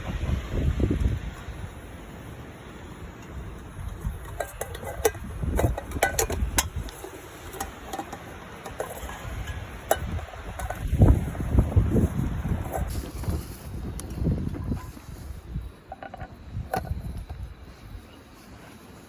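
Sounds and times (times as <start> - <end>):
wind rumble on microphone: 0.0 - 19.0
utensils scraping metal pot: 3.8 - 17.5.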